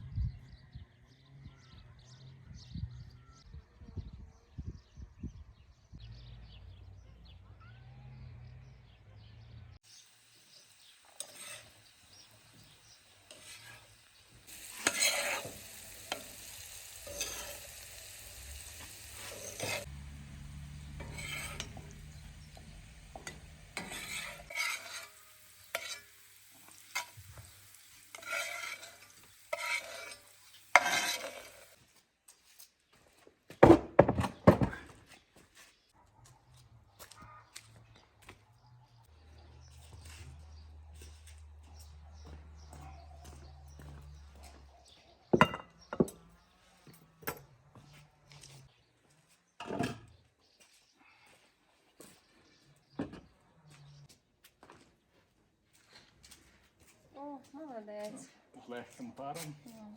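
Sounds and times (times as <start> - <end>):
food sizzling in a frying pan: 9.8 - 31.8
utensil scraping a frying pan: 10.5 - 31.8
utensil clattering against pan: 28.1 - 31.6.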